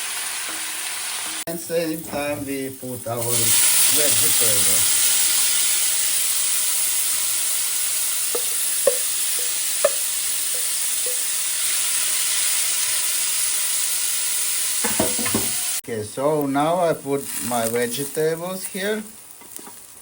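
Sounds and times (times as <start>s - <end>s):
seafood sizzling in a pan: 0.0s - 15.8s, 16.4s - 20.0s
utensil knocking on pan: 8.3s - 11.3s, 14.8s - 15.6s.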